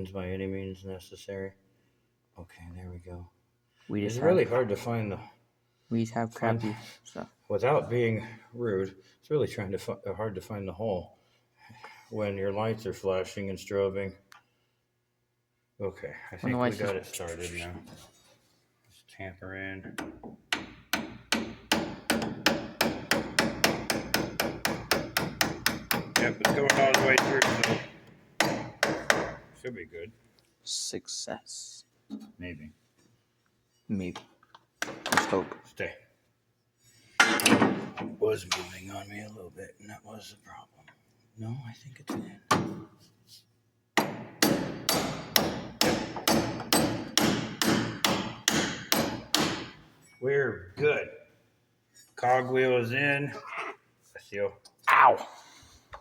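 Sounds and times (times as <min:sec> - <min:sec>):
hammer tapping metal part: 0:20.0 - 0:29.4.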